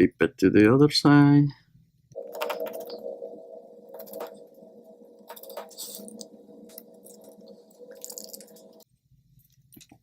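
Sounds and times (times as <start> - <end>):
steady low hum: 1.6 - 9.5.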